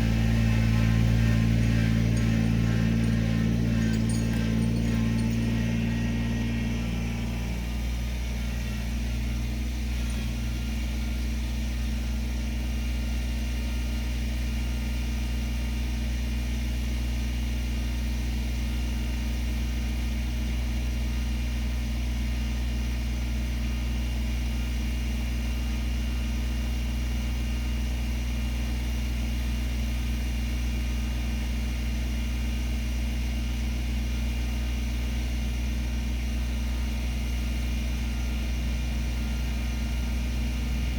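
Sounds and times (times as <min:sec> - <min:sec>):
engine idling: 0:00.0 - 0:13.4, 0:35.7 - 0:40.9.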